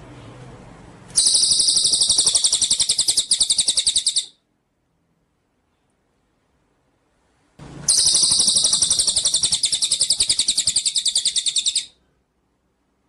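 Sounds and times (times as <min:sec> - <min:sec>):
songbird high-pitched trill: 0:01.2 - 0:04.3, 0:07.9 - 0:11.9.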